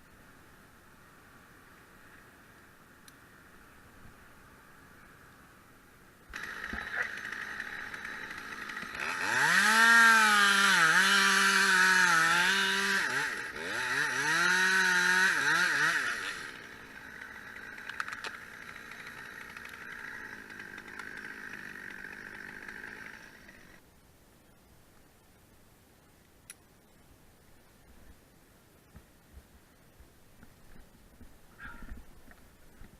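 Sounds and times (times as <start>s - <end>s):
chainsaw cutting wood: 6.3s - 23.8s.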